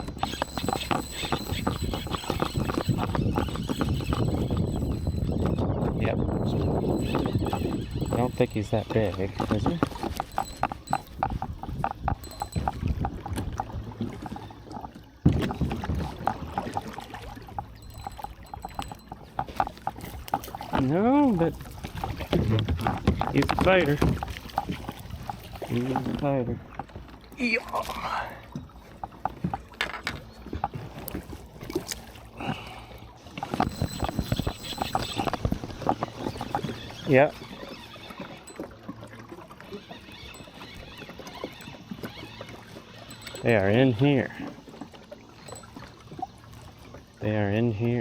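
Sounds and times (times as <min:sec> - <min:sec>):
light handling ticks: 0:00.0 - 0:26.3
knocks and taps against kayak: 0:00.0 - 0:27.1, 0:28.6 - 0:32.1
water sounds: 0:00.0 - 0:48.0.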